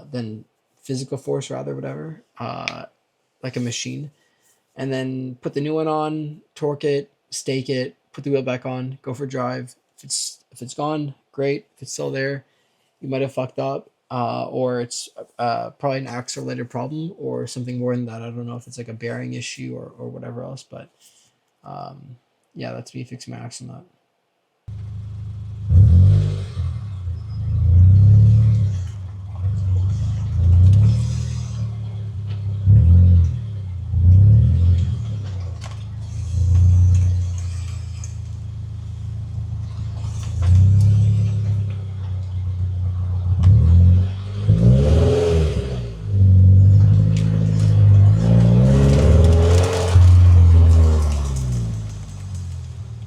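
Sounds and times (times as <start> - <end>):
car engine revving: 24.7 - 53.0.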